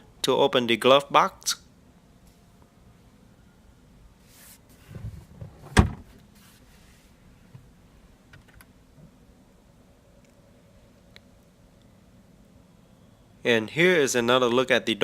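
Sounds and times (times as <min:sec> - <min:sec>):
glove box lid thump: 0:05.4 - 0:06.1.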